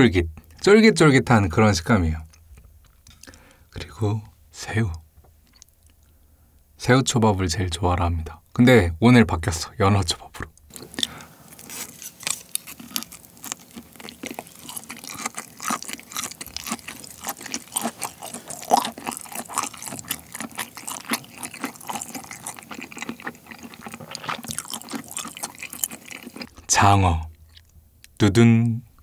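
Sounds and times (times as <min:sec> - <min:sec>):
wet chewing clicks and smacks: 0:04.9 - 0:06.2, 0:12.2 - 0:26.7, 0:27.3 - 0:28.2.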